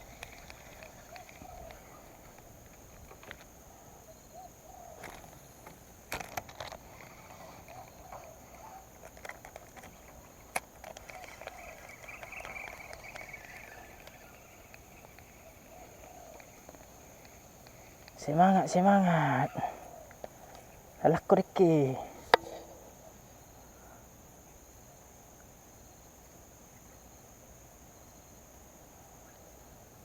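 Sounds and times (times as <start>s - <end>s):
faint wavering animal calls: 0.0s - 24.1s
sharp clicks: 5.0s - 18.4s.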